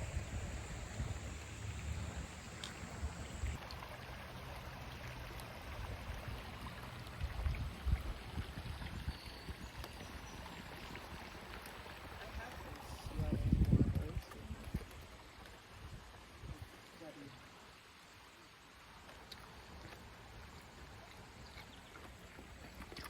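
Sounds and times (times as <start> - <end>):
running water rushing: 0.0 - 23.0.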